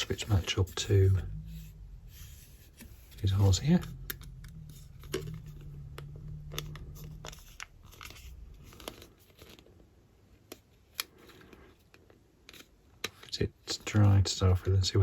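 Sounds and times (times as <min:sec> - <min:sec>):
low steady hum: 0:00.0 - 0:15.0
plastic parts clicking and tapping: 0:03.8 - 0:09.7, 0:10.3 - 0:14.1.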